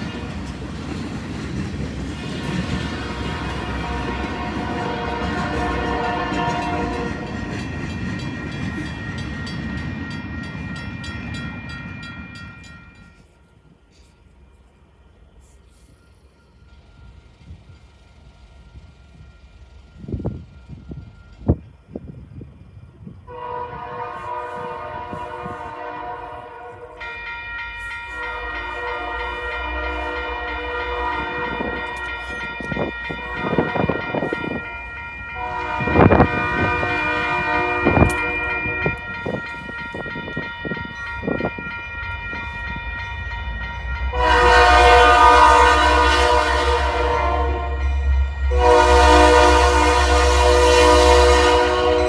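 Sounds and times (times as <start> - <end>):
passing train clatter: 0.0 - 52.0
locomotive air horn blast: 2.9 - 7.5, 23.3 - 27.0, 28.2 - 32.1, 35.4 - 39.0, 44.1 - 52.0.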